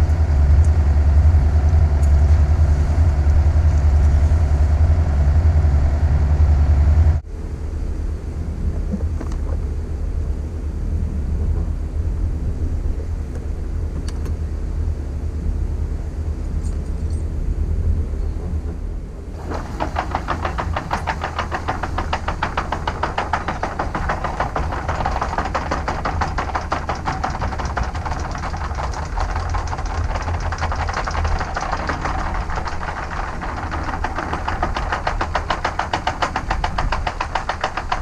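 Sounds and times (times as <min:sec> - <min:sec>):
engine humming: 0:00.0 - 0:38.0
fast mechanical clatter: 0:19.3 - 0:38.0.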